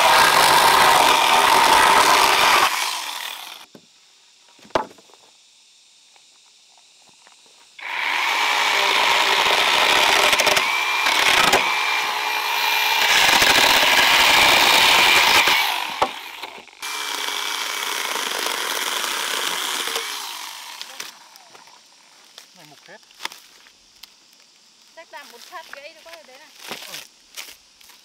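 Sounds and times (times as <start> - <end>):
power saw cutting wood: 0.0 - 3.7, 7.8 - 21.5.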